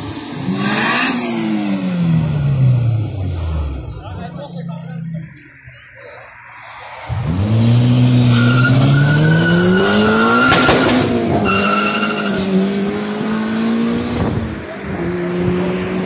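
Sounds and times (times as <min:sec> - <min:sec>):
car engine revving hard: 0:07.1 - 0:16.0.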